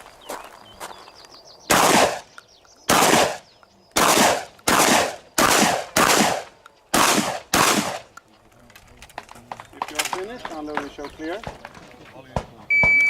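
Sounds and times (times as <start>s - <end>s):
shotgun blasts: 1.7s - 2.3s, 2.9s - 8.1s.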